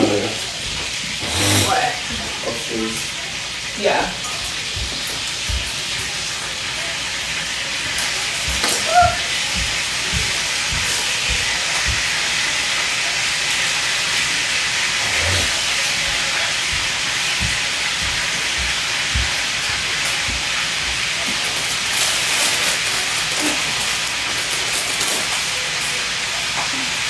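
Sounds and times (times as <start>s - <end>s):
steady loud hiss: 1.0s - 3.2s, 13.0s - 21.9s.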